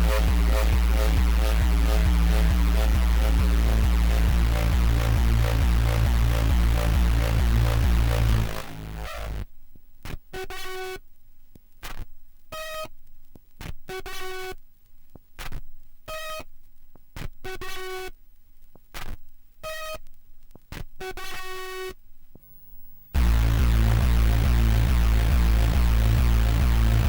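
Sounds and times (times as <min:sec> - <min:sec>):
bass-heavy techno beat: 0:00.0 - 0:09.4, 0:23.2 - 0:27.0
buzzy synthesizer tones: 0:00.0 - 0:09.4, 0:23.2 - 0:27.0.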